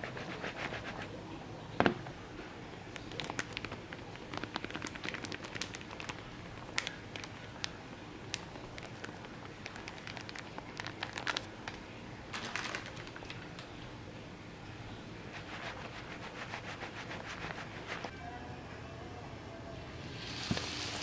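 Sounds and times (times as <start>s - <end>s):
hot oil crackling and popping: 2.8s - 11.8s, 20.2s - 21.0s.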